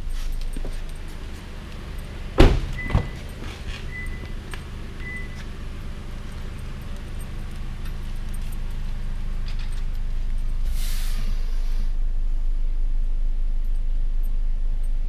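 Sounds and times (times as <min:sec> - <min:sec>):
car engine humming: 0:00.0 - 0:15.0
short hiss: 0:10.6 - 0:11.9.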